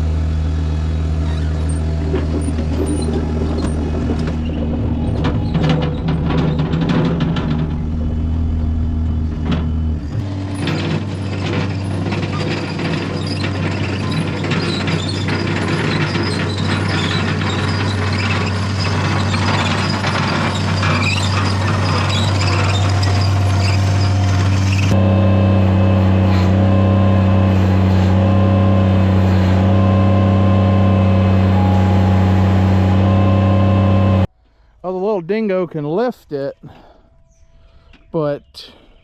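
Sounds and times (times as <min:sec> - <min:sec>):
small engine running under load: 0:00.0 - 0:34.3
metal clanking and rattling: 0:01.2 - 0:25.0.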